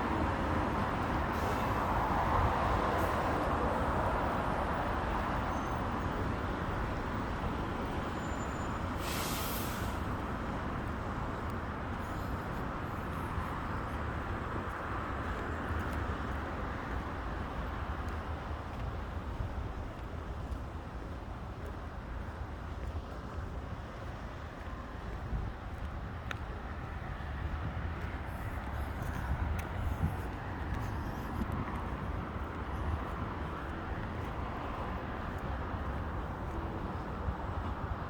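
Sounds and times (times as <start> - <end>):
city road traffic: 0.0 - 38.0
short sharp hiss: 9.0 - 10.1.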